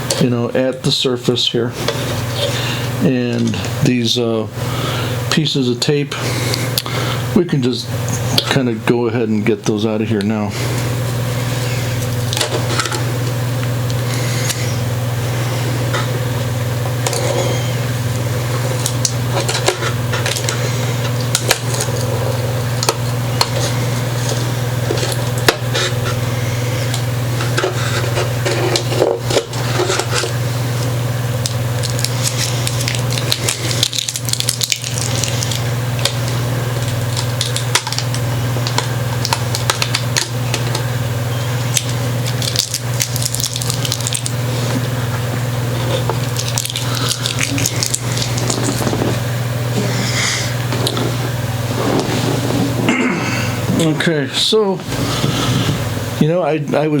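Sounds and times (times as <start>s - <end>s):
low steady hum: 0.0s - 57.0s
tape pulling away: 45.7s - 49.3s.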